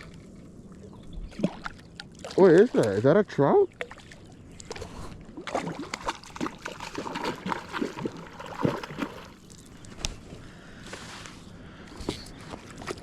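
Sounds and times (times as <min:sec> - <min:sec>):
water trickling and splashing: 0:00.0 - 0:10.1.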